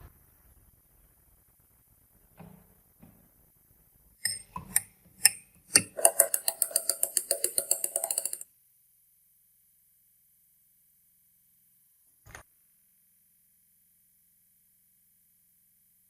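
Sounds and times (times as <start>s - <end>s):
meat grinder metal clicks: 4.2s - 8.4s
fast ringing ticks: 5.2s - 8.4s.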